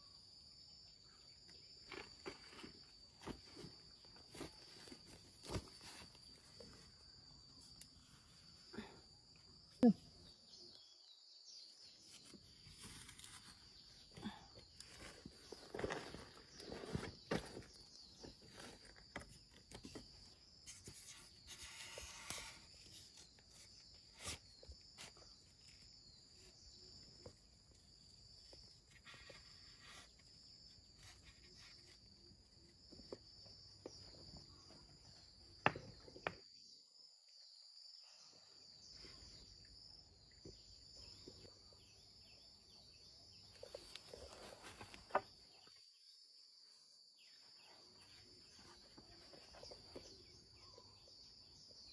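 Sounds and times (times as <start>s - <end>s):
insects chirping: 0.0s - 51.9s.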